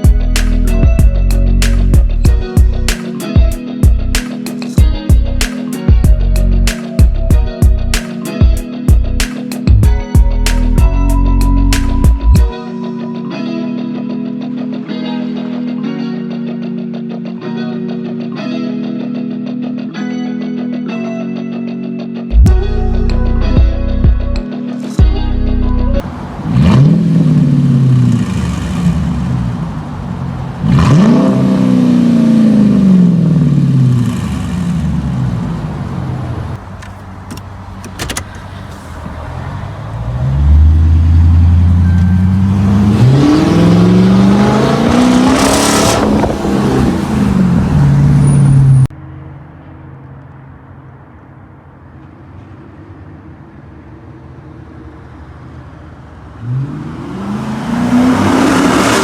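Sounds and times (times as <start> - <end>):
quiet steady engine sound: 25.0 - 30.6, 32.9 - 42.8
car engine revving: 25.0 - 48.9, 56.4 - 59.0.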